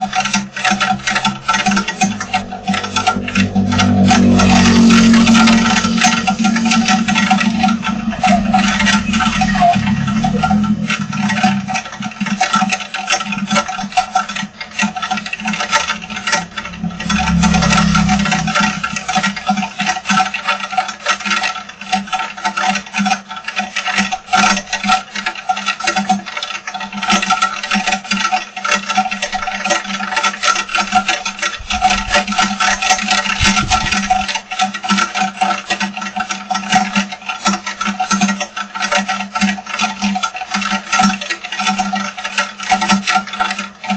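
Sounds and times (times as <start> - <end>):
steady low hum: 0.3 - 20.3.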